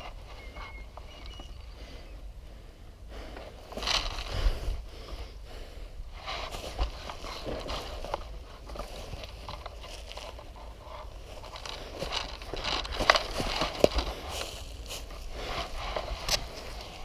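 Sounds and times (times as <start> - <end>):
rustling through brush and leaves: 0.0 - 2.1, 3.2 - 5.2, 6.1 - 17.0.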